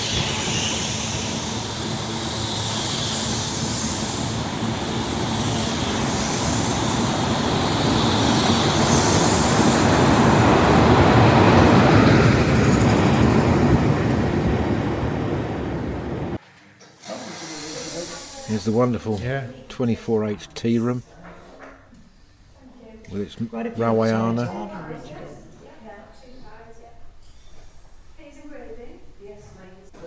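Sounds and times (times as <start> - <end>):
train passing: 0.0 - 16.4.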